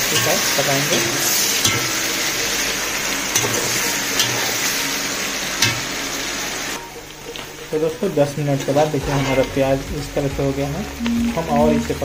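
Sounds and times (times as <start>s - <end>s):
metal spatula knocking pot: 0.0s - 2.3s
onions and meat sizzling in oil: 0.0s - 12.0s.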